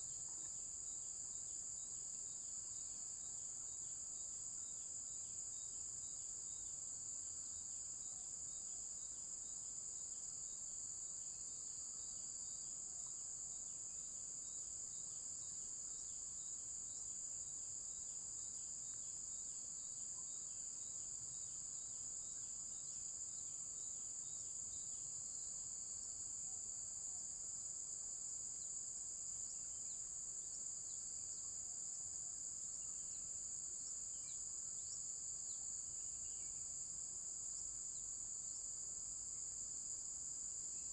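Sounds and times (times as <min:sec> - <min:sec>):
faint insect chirp: 0:00.0 - 0:40.9.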